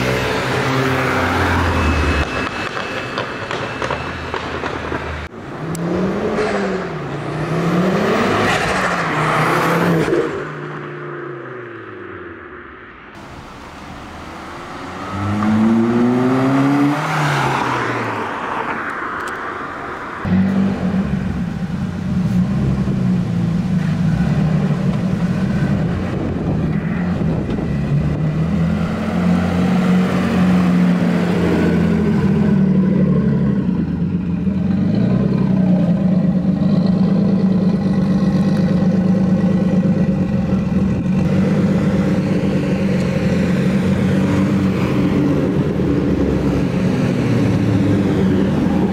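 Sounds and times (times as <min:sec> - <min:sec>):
loud engine droning: 0:00.0 - 0:19.4, 0:20.0 - 0:48.9
car engine accelerating: 0:13.2 - 0:19.4, 0:20.2 - 0:48.9.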